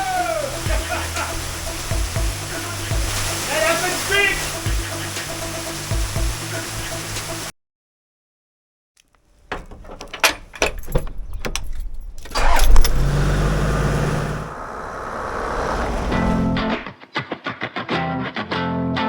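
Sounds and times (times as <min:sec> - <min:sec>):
keys jangling and clicking: 0:10.1 - 0:12.9
car engine running: 0:12.4 - 0:16.8.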